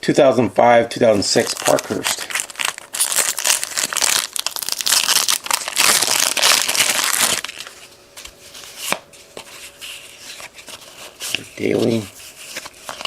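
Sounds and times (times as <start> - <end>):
wrapper tearing and crinkling: 1.4 - 7.8
cards clicking and rustling: 10.2 - 13.0.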